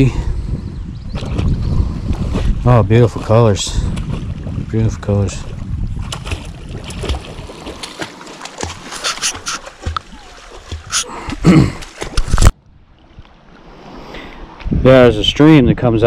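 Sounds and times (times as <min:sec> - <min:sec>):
water splashing: 0:02.2 - 0:14.6.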